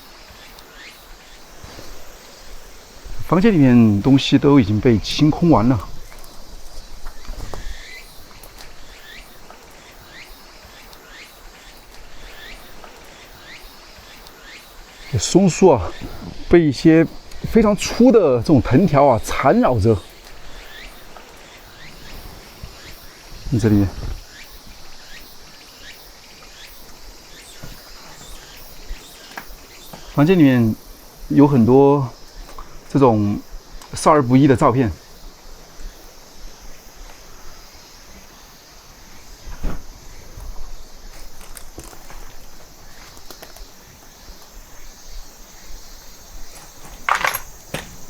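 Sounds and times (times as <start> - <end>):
background hiss: 0.0 - 48.0
high-pitched insect buzz: 0.0 - 48.0
insect chirps: 0.0 - 48.0
rustling: 0.5 - 4.2, 39.0 - 48.0.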